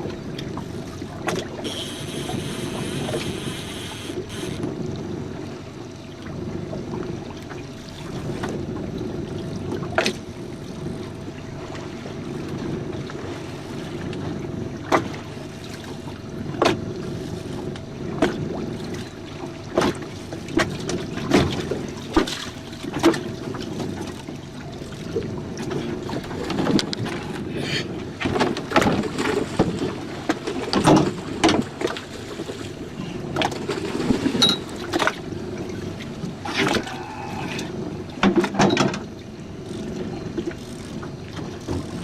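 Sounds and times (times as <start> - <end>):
faint steady hum: 0.0 - 28.7
water against boat hull: 0.0 - 42.0.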